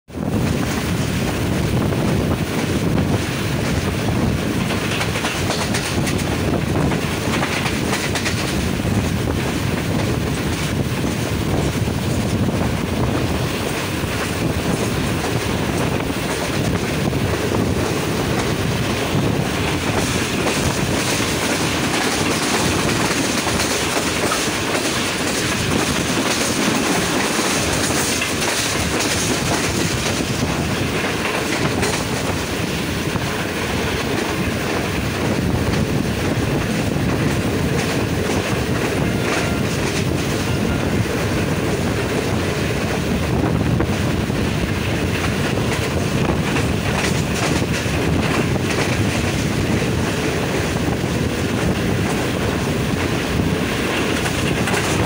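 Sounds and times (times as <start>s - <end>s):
train wheels rumbling and clattering: 0.1s - 55.0s.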